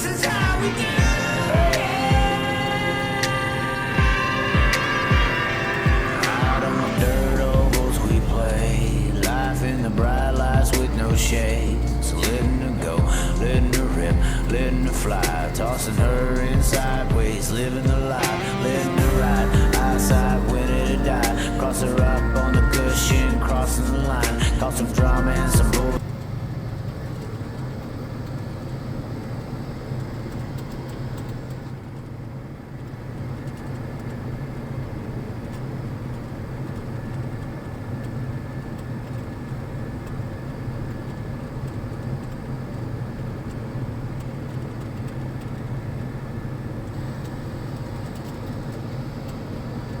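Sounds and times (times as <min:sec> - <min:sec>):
motor engine running: 0:00.0 - 0:26.0.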